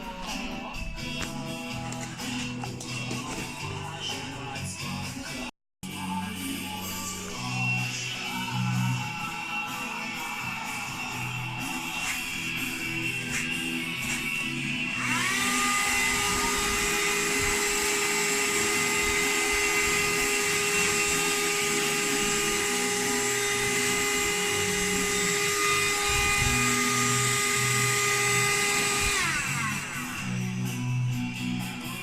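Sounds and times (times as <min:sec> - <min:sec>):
handheld vacuum cleaner whining: 0:10.6 - 0:31.2.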